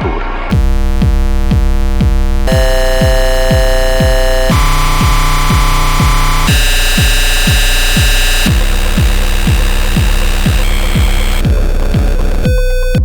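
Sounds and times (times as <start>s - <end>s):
kick drum: 0.0s - 13.0s
buzzing square-wave synth tones: 0.5s - 13.0s.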